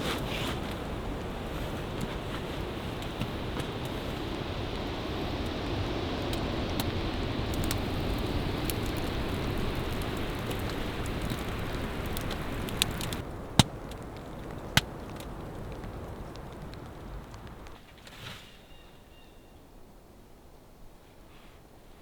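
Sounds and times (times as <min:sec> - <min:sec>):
steady rushing noise: 0:00.0 - 0:13.2
wood fire crackling and popping: 0:00.0 - 0:18.4.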